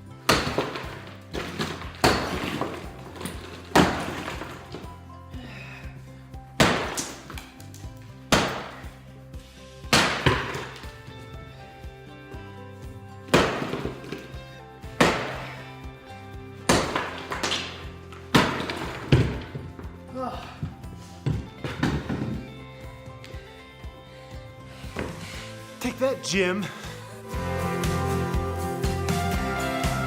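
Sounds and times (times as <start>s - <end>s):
background music: 0.0s - 30.0s
sledgehammer striking brick: 0.2s - 5.0s, 6.6s - 7.5s, 8.3s - 9.0s, 9.9s - 11.0s, 13.3s - 14.4s, 15.0s - 15.7s, 16.6s - 19.9s, 21.2s - 22.5s
broken brick rattling: 0.2s - 5.1s, 6.6s - 9.0s, 10.0s - 11.0s, 13.2s - 15.7s, 16.6s - 22.9s.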